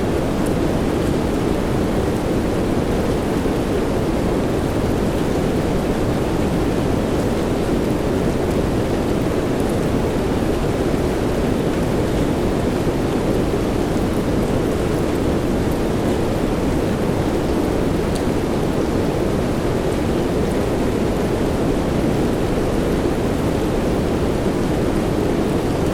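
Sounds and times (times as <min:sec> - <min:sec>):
steady rain hiss: 0:00.0 - 0:25.9.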